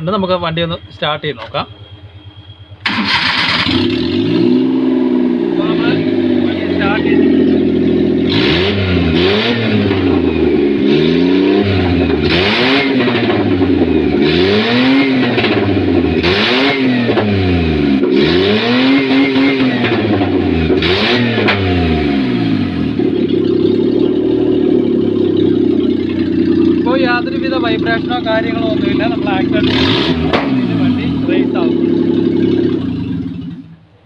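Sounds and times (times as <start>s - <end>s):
petrol engine revving and idling: 0.0s - 34.0s.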